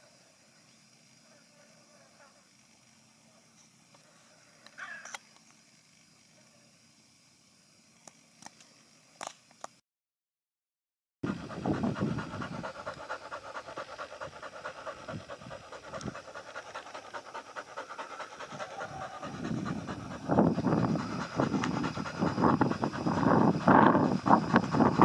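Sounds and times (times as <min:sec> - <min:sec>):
pigs snuffling and grunting: 0:11.3 - 0:25.0.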